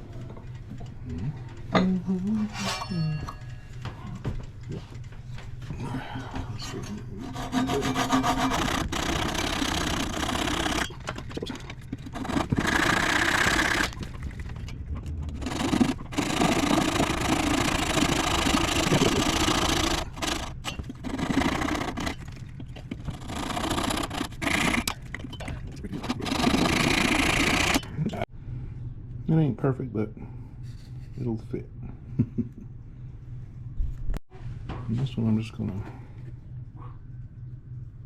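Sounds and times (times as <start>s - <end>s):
scraping and grinding wood: 7.2s - 27.9s.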